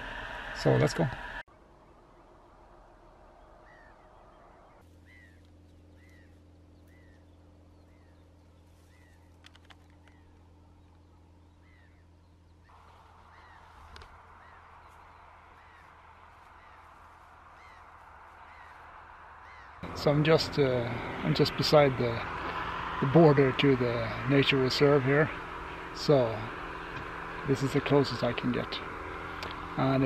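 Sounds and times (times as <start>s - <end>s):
faint bird calling: 3.3s - 21.3s.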